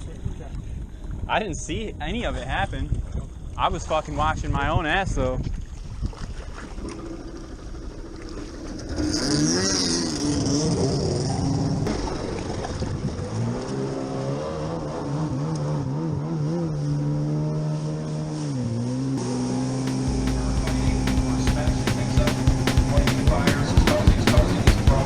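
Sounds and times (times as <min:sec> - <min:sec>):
jet ski engine throttling: 0:06.6 - 0:13.4, 0:19.2 - 0:25.0
water spray rushing: 0:19.2 - 0:25.0.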